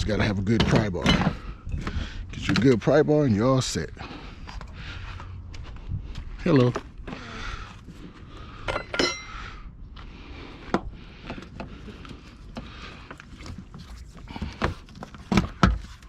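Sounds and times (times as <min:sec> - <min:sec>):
hand tools clicking and knocking: 0:08.7 - 0:09.3
metal tool clinking: 0:08.7 - 0:09.3.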